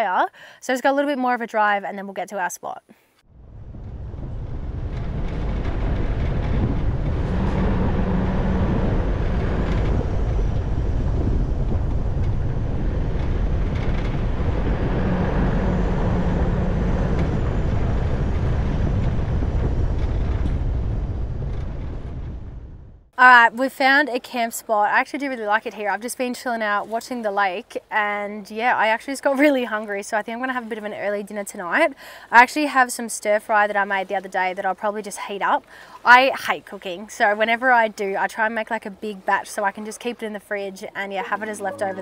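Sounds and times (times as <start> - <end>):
low hum: 3.2 - 23.4, 40.8 - 42.0
vehicle road and engine noise: 3.3 - 23.1.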